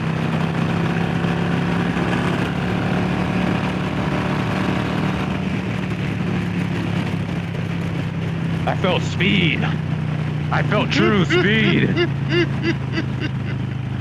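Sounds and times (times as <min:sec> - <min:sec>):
motorcycle engine at speed: 0:00.0 - 0:14.0
rush of noise: 0:10.5 - 0:14.0.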